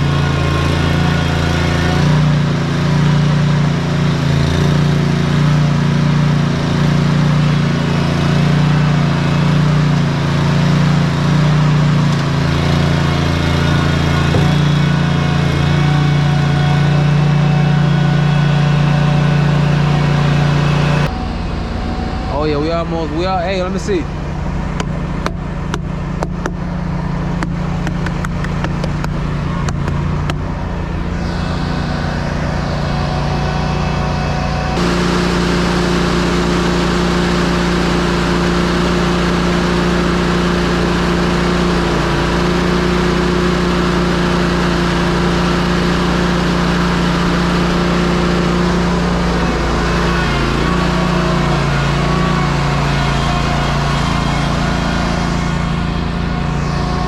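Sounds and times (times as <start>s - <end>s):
truck diesel engine and road noise: 0.0s - 57.0s.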